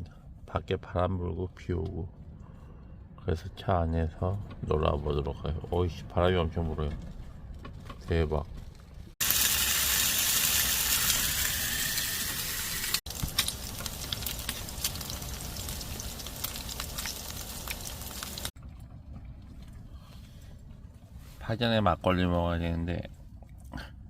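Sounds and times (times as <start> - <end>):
pork sizzling on a grill pan: 9.2 - 18.5.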